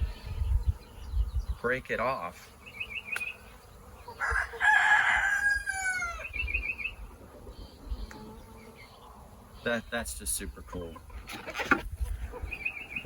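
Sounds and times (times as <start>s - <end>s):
rooster crowing: 4.2s - 6.4s.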